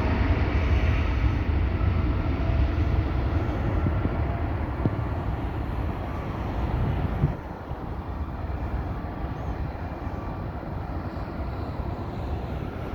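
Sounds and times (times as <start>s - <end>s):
distant jet engine rumble: 0.0s - 12.9s.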